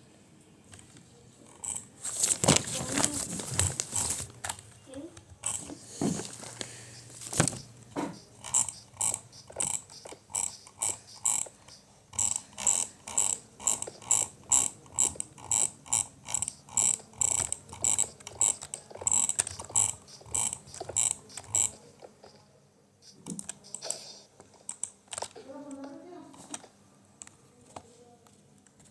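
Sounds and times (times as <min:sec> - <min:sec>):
mechanical clicking: 0:06.6 - 0:22.1, 0:23.0 - 0:25.9.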